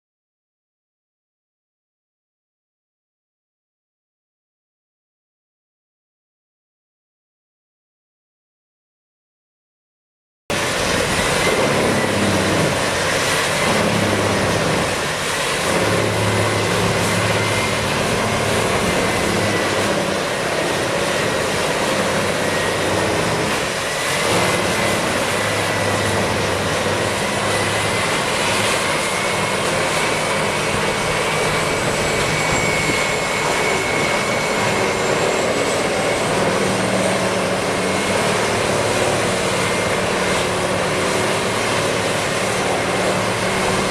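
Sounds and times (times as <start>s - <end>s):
wood chipper running: 10.6s - 43.9s
thin high whine: 14.9s - 41.6s.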